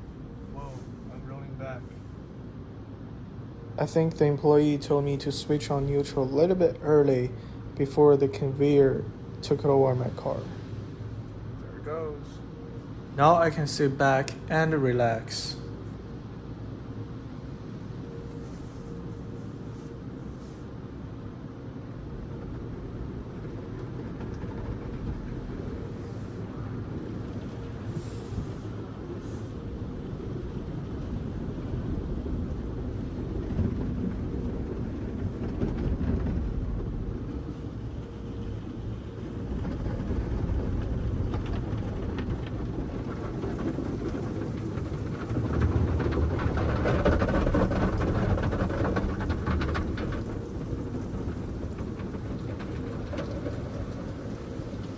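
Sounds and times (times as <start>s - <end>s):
car wash water spray and machinery: 25.8s - 33.3s.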